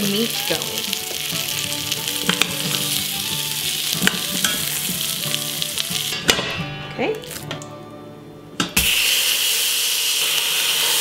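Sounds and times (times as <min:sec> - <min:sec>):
carrots sizzling in butter: 0:00.0 - 0:06.2, 0:08.8 - 0:11.0.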